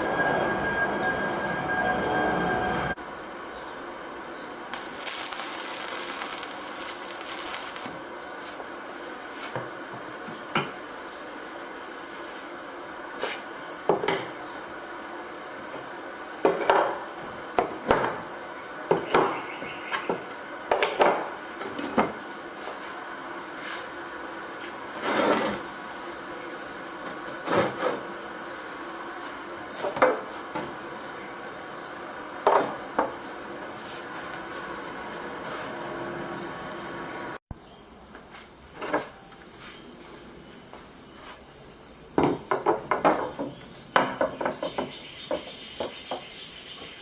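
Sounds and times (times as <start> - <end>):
hiss: 4.8 - 8.0.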